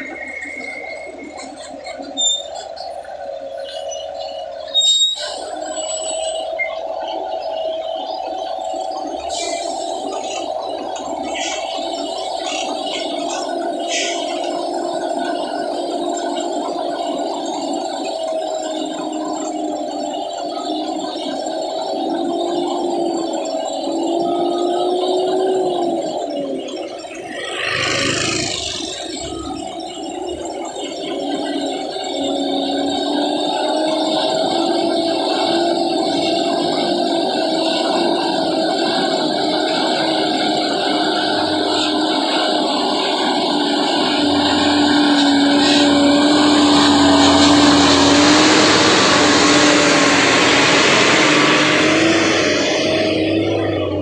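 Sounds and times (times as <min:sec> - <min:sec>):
truck diesel engines climbing: 0:00.0 - 0:54.0
low rumble: 0:44.1 - 0:54.0
air hiss: 0:44.3 - 0:54.0.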